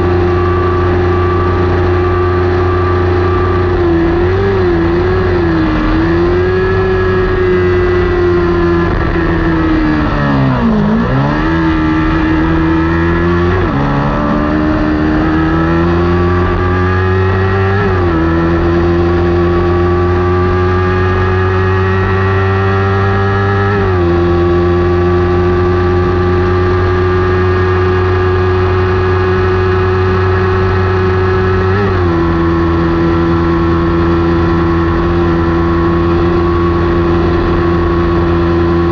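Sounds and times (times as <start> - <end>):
motorcycle engine at high revs: 0.0 - 38.9.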